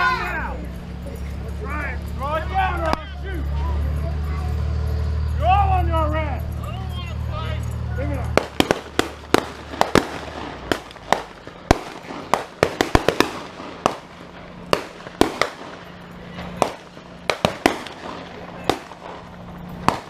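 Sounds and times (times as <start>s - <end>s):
gunshots with echo: 8.3s - 20.0s.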